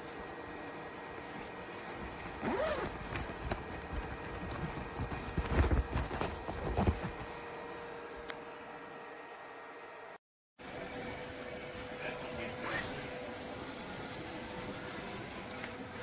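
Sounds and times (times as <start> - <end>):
handling knocks and rustles: 1.2 - 7.4
zip-like sound: 12.6 - 15.2.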